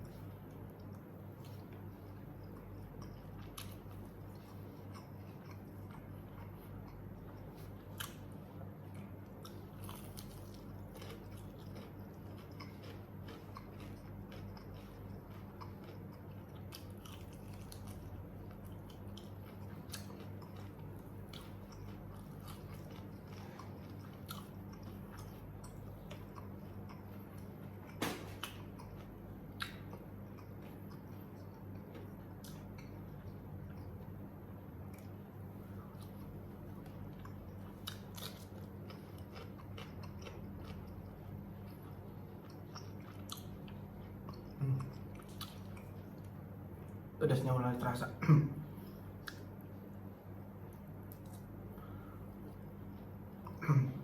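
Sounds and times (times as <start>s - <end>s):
person chewing crispy chicken: 0.0s - 47.0s
steady low hum: 0.0s - 54.0s.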